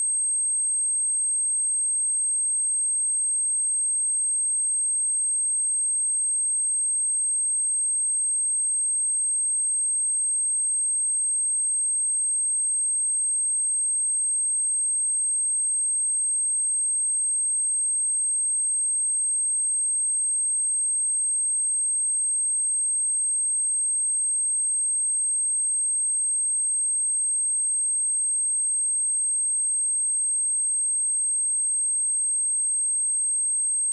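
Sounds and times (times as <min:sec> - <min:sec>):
high-pitched sine test tone: 0:17.9 - 0:33.9.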